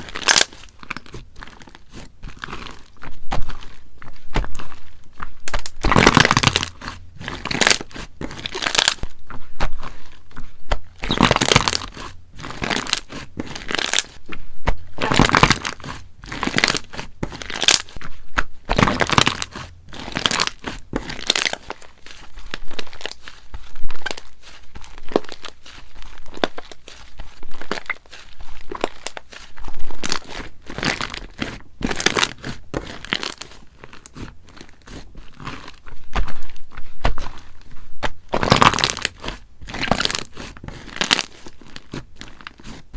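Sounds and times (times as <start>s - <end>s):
slime squishing and popping: 0.0s - 42.9s.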